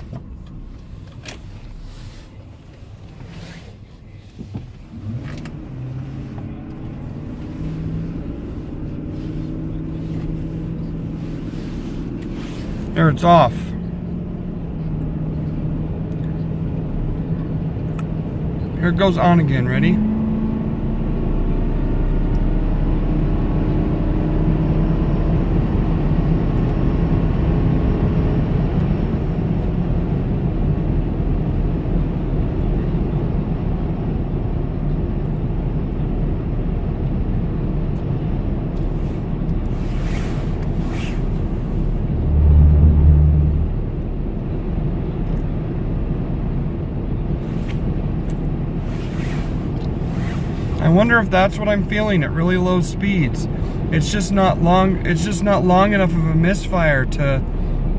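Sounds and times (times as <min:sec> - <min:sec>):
road noise: 0:00.0 - 0:57.9
truck engine accelerating: 0:00.0 - 0:57.9
low hum: 0:34.7 - 0:50.8.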